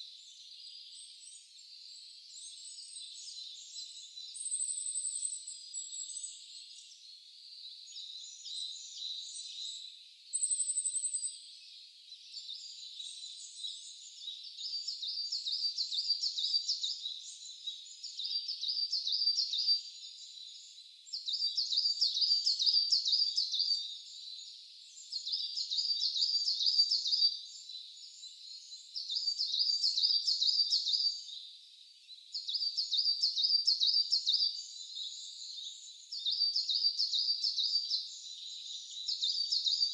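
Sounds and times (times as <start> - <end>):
bird chattering song: 32.4 - 39.9.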